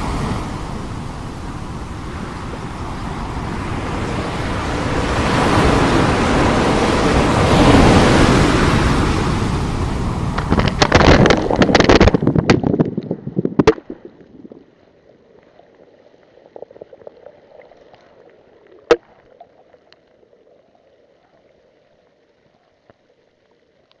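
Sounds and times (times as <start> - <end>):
wind buffeting microphone: 0.0 - 14.6
rough surf: 0.0 - 14.8.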